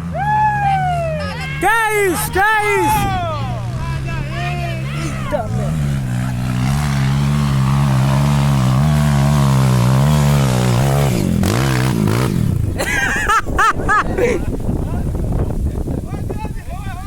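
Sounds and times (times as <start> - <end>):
motorcycle engine revving: 0.0 - 13.1.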